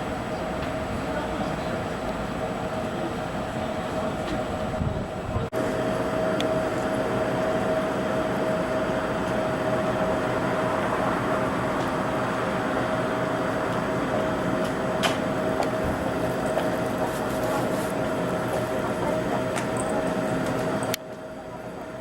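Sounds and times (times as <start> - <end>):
train rumbling: 0.0 - 21.0
steady mid-pitched hum: 0.0 - 22.0.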